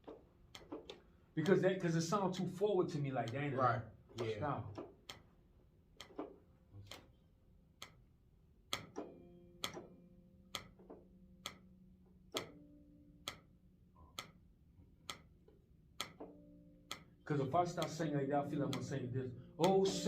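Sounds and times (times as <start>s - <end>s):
metronome clicking: 0.0s - 5.3s, 5.9s - 7.2s, 7.8s - 8.1s, 8.7s - 20.0s.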